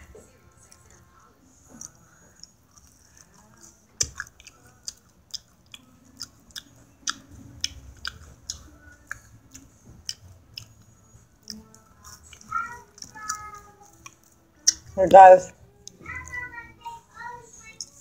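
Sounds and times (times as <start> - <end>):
person chewing food: 1.6 - 15.0
wet mouth clicks and smacks: 4.0 - 9.2, 14.0 - 14.9.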